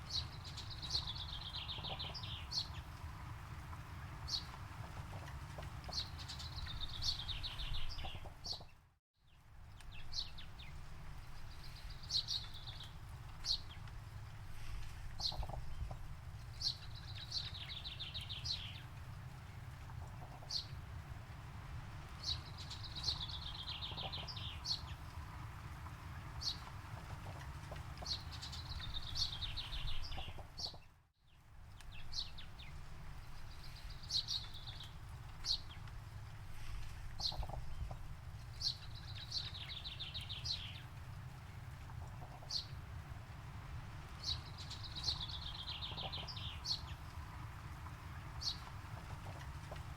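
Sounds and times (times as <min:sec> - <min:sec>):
songbird singing: 0:00.0 - 0:49.9
steady low rumble: 0:31.5 - 0:49.9.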